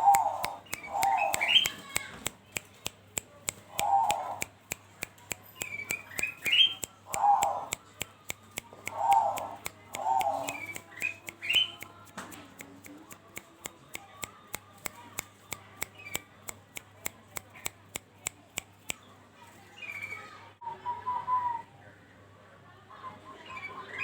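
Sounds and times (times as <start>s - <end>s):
dove calling: 0.0s - 1.9s, 3.6s - 4.5s, 5.6s - 7.8s, 8.8s - 11.8s.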